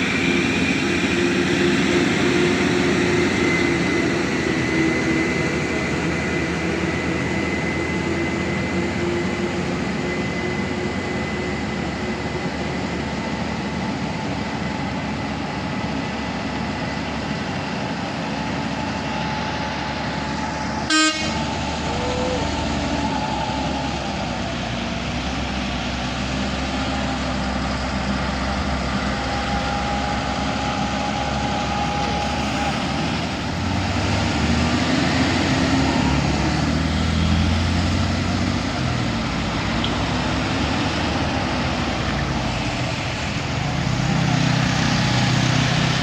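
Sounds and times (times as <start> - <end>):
truck engines running: 0.0 - 46.0
truck horn toot: 20.8 - 22.6.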